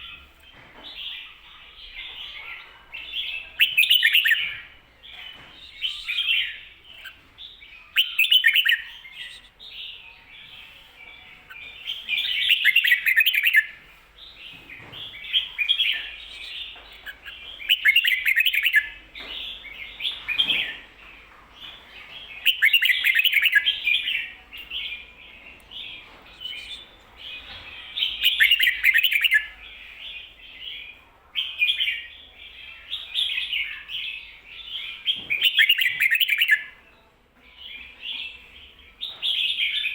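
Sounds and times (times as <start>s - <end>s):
bird singing chirpy phrases: 1.0s - 10.8s, 11.5s - 13.7s, 14.4s - 20.9s, 21.7s - 36.9s
bird chattering notes: 11.5s - 13.7s, 22.4s - 24.4s, 25.8s - 29.5s, 35.4s - 36.6s.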